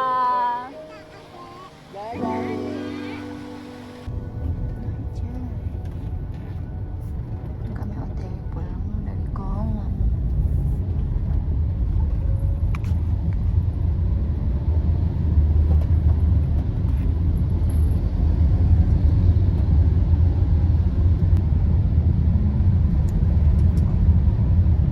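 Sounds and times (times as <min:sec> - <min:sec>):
moving vehicle rumble: 0:00.0 - 0:24.9.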